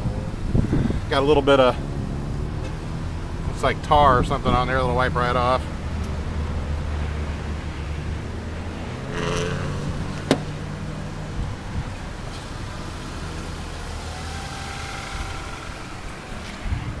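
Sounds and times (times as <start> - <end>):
car engine idling: 10.2 - 17.0.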